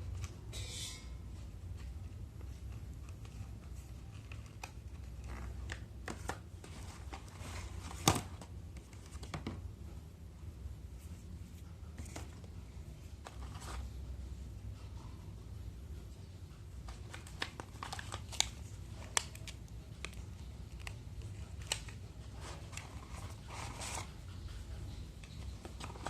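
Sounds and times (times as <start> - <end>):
low steady hum: 0.0 - 26.0
packaging rustling and crinkling: 16.9 - 24.1.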